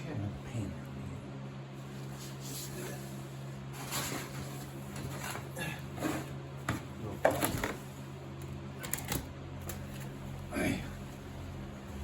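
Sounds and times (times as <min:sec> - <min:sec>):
steady low hum: 0:00.0 - 0:12.0
scraping and rustling: 0:01.9 - 0:06.4.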